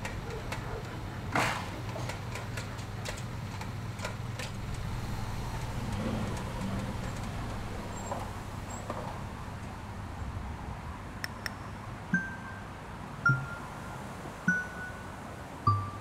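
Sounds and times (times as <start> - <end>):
car engine running low hum: 3.2 - 12.4
light sharp ticks: 11.2 - 11.6.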